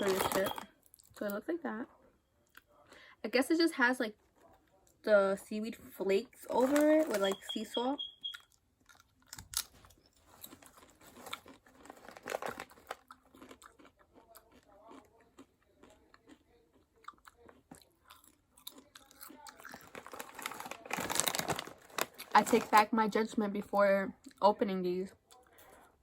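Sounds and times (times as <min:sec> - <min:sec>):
person chewing potato chips: 0:00.0 - 0:01.2, 0:06.5 - 0:22.7.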